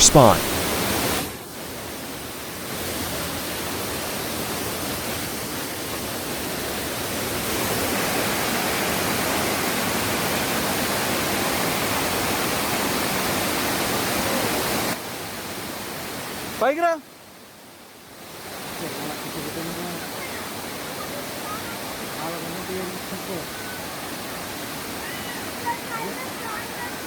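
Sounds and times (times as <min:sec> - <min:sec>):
waterfall rushing: 0:00.0 - 0:00.7.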